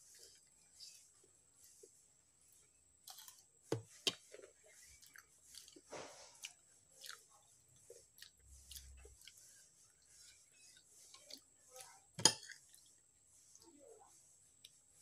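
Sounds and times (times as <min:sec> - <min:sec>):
person chewing food: 0:02.6 - 0:03.5, 0:04.1 - 0:13.0.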